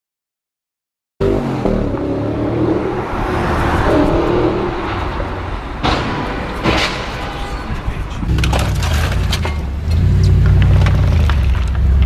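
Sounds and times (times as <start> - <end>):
car engine revving: 1.2 - 12.0
road and wind roar: 1.2 - 12.0
sharp bang: 3.6 - 8.2.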